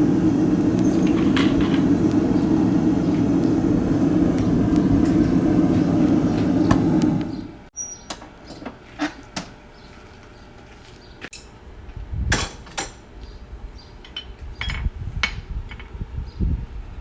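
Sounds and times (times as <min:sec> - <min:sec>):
metal tools clinking on anvil: 0:00.8 - 0:01.9, 0:11.3 - 0:11.6, 0:14.0 - 0:14.9.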